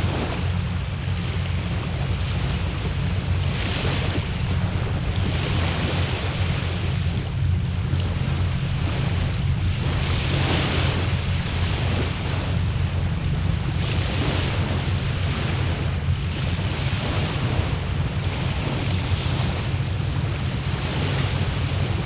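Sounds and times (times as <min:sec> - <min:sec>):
steady high-pitched tone: 0:00.0 - 0:21.8
wind rushing over microphone: 0:00.0 - 0:22.0.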